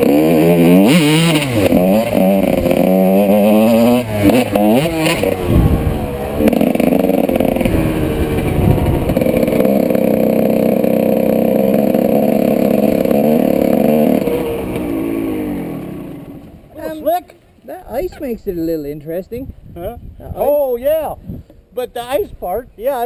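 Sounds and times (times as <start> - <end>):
motocross bike engine: 0.0 - 17.3.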